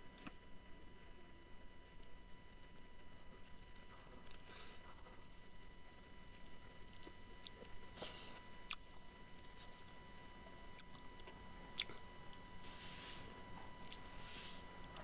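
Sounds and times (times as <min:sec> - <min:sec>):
person chewing wet mouth sounds: 0:06.3 - 0:09.8, 0:10.7 - 0:12.1, 0:13.1 - 0:15.0.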